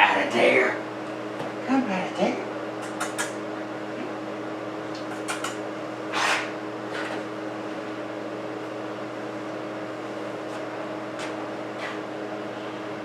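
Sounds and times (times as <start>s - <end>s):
low machine hum: 0.0s - 13.0s
scuffing noises: 10.4s - 12.0s.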